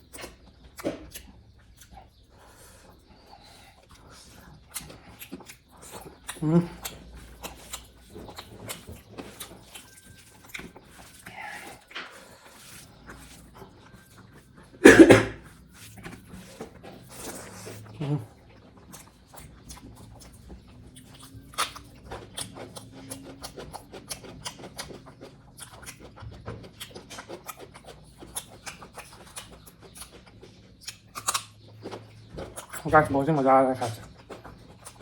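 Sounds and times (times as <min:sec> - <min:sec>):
person chewing food: 0:00.0 - 0:35.0
wet mouth clicks and lip smacks: 0:20.9 - 0:30.2, 0:30.8 - 0:32.9.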